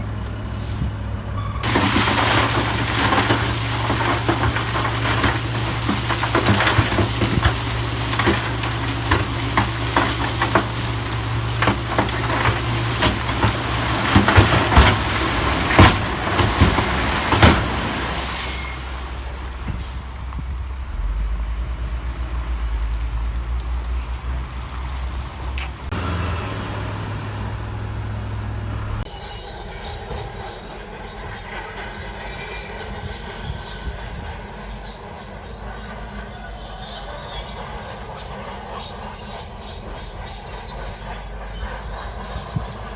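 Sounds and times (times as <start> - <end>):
heavy machinery diesel engine: 0.0 - 42.9
rock and steel clanking: 1.6 - 19.9.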